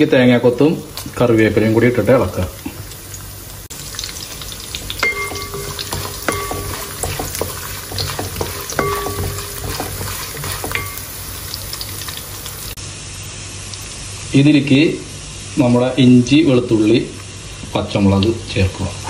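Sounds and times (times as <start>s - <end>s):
food sizzling in hot oil: 0.0s - 19.0s
spatula knocking the pan: 4.9s - 11.2s
wooden spatula scraping a pan: 5.0s - 11.4s.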